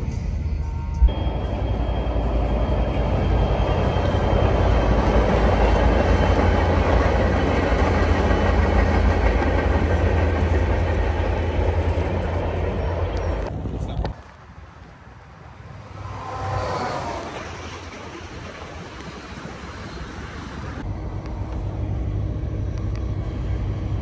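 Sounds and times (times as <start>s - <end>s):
diesel locomotive engine rumble: 0.0s - 24.0s
wheels rolling on rails: 1.3s - 13.5s, 15.4s - 20.8s.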